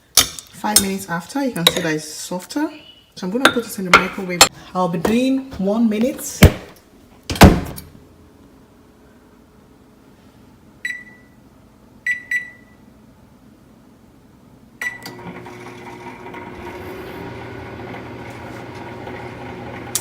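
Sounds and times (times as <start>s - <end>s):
short keypad beeps: 10.8s - 11.3s, 12.1s - 12.8s
microwave humming: 14.8s - 20.0s.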